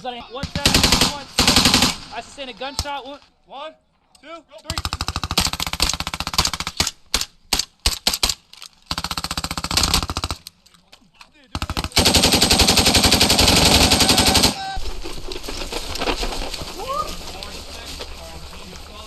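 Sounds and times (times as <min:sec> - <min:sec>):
machine-gun fire: 0:00.4 - 0:02.2, 0:04.7 - 0:10.4, 0:11.6 - 0:14.6.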